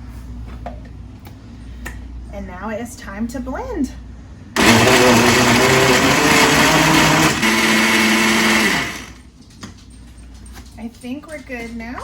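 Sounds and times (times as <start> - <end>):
electric blender running: 4.6 - 9.2.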